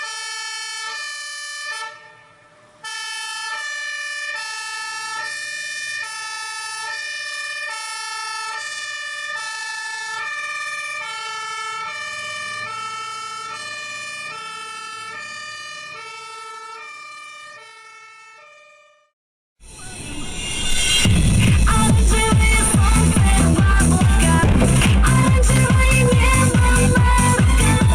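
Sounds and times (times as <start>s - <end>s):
two-tone emergency siren: 0.0s - 24.6s
music: 19.8s - 27.9s.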